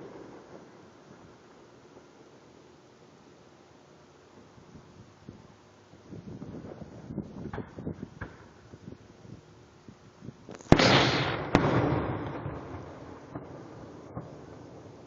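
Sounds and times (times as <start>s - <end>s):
small firework pops: 6.4s - 8.6s, 10.4s - 13.5s
loud firework bangs: 10.5s - 14.5s
rolling echo: 10.5s - 15.0s.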